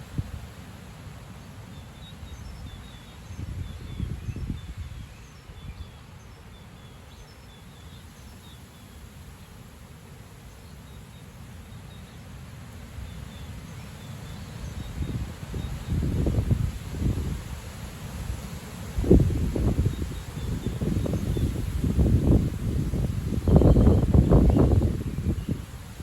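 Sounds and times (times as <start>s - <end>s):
wind rumbling against microphone: 0.0s - 0.6s, 2.4s - 6.0s, 13.0s - 26.0s
small birds chirping: 19.0s - 26.0s.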